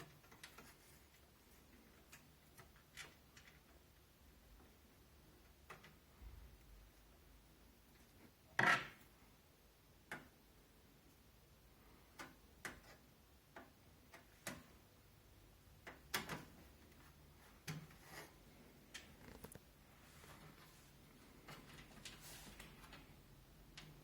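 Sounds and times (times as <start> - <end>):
computer case parts knocking and clicking: 15.8 - 16.8.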